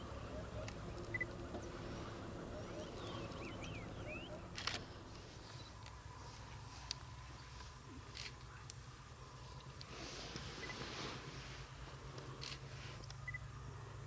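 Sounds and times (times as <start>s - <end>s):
small birds chirping: 0.0s - 9.9s
low steady rumble: 0.0s - 14.0s.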